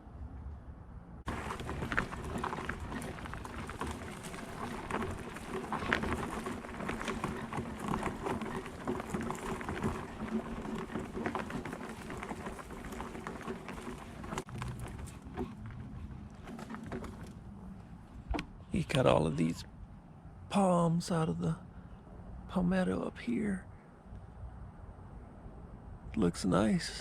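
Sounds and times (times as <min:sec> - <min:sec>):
wheelchair wheels crunching debris: 0:01.3 - 0:15.5.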